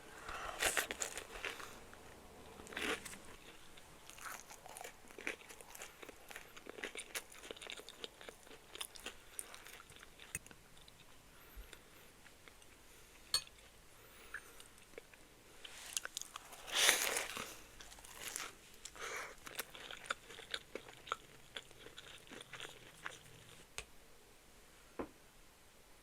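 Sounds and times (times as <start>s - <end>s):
crackly chewing: 0.3s - 12.8s, 13.6s - 23.7s
pastry crunching: 0.6s - 1.8s, 2.5s - 11.1s, 15.7s - 23.6s.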